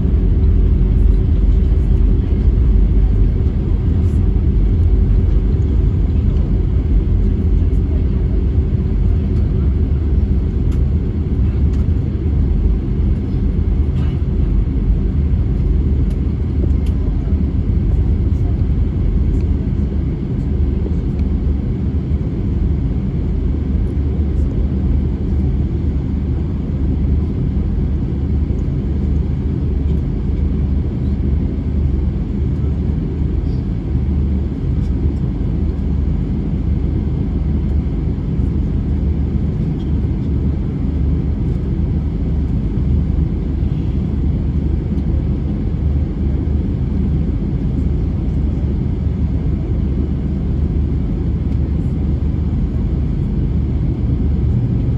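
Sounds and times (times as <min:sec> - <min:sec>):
aircraft cabin engine rumble: 0:00.0 - 0:54.9.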